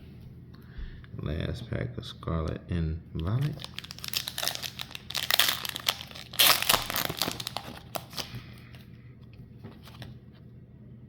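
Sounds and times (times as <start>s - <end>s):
foil pack tearing and crinkling: 3.4s - 8.4s.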